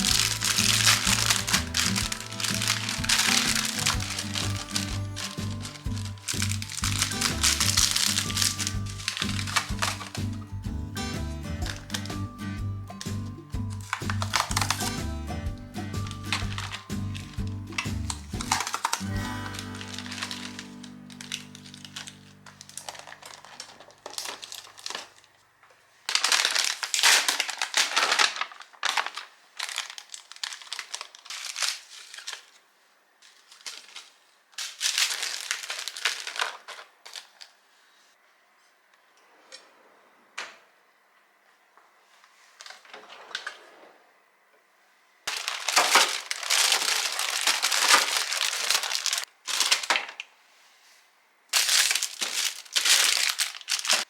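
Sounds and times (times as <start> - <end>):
plastic packaging crinkling: 0.0 - 37.6, 45.3 - 50.3, 51.5 - 54.0.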